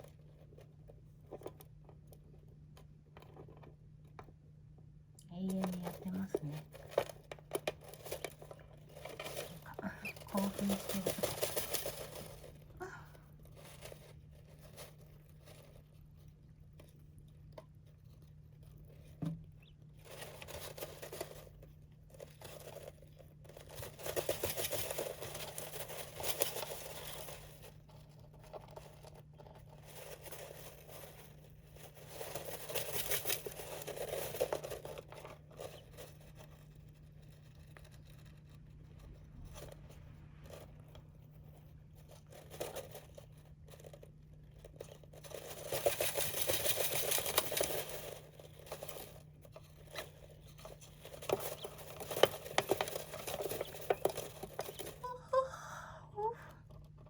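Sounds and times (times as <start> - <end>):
faint low hum: 0.0 - 57.0
birds scratching in sand: 19.5 - 55.2.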